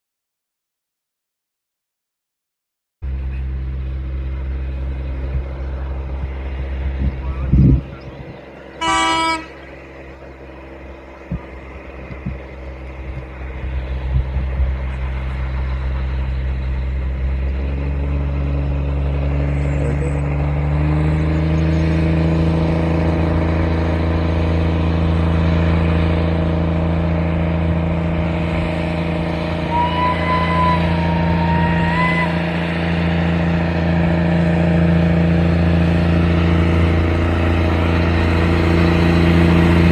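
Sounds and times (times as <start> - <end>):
train engine running: 3.0 - 39.9
train horn toot: 8.8 - 9.6, 29.6 - 32.4.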